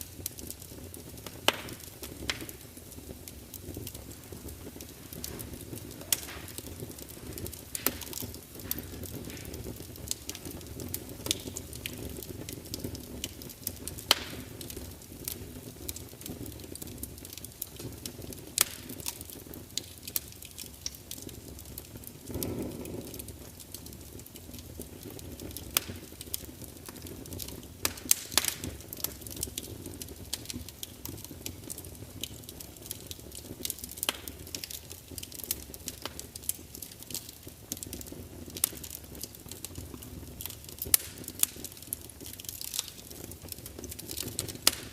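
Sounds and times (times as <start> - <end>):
flame whoosh: 0.0 - 15.3, 22.2 - 24.2
fire rumbling: 0.0 - 44.9
logs crackling and popping: 0.0 - 44.9.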